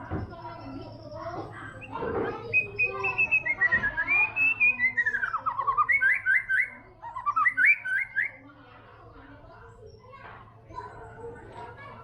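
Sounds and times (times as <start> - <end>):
bird singing whistled notes: 1.7 - 8.4.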